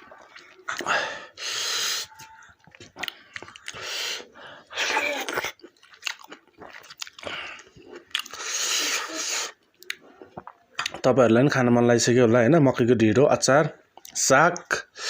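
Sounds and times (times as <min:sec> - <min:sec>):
wet chewing: 0:00.0 - 0:01.0, 0:02.0 - 0:04.1, 0:05.0 - 0:11.1.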